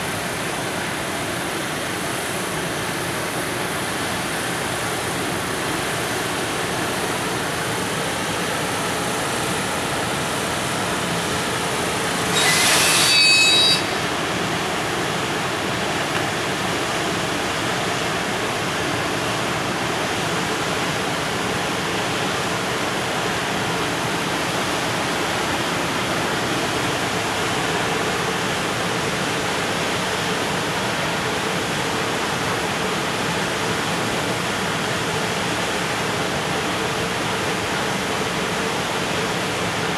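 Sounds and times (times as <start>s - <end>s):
hiss with high whistling: 7.5s - 15.8s.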